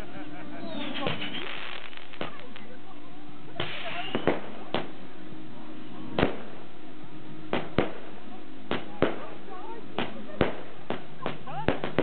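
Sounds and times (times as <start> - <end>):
fireworks bangs: 0.7 - 2.7, 3.6 - 5.0, 6.1 - 6.7, 7.5 - 12.0
firework hiss: 0.8 - 2.8, 3.6 - 5.0, 6.2 - 6.7.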